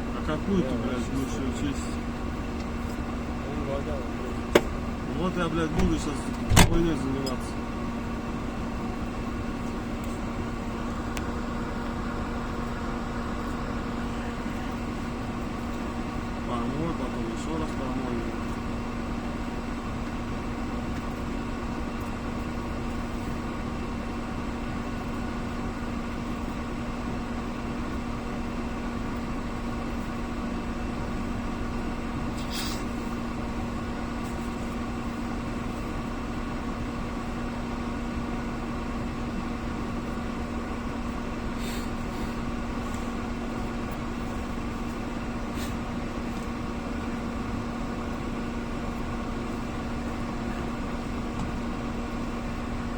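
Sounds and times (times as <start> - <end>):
engine idling: 0.0 - 52.9.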